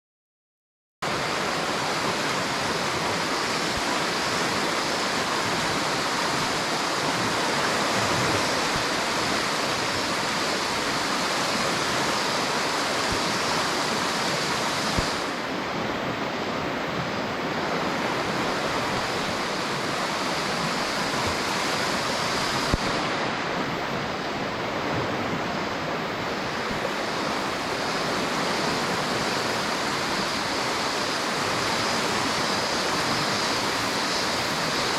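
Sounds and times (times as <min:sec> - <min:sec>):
river water rushing: 0:01.0 - 0:34.9.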